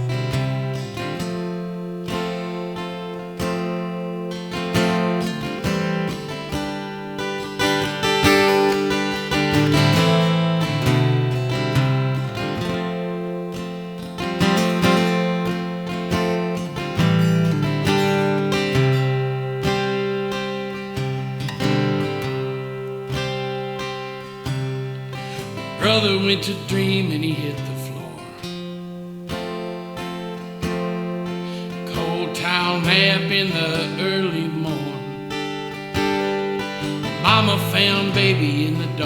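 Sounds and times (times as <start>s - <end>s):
acoustic guitar strummed and picked: 0.0s - 39.0s.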